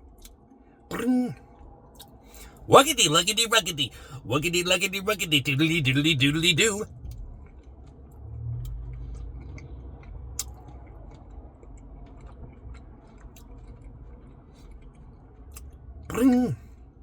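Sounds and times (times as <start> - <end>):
low hum: 0.0 - 12.9
chewing ice cream: 0.0 - 17.0
wet mouth clicks: 10.3 - 13.6.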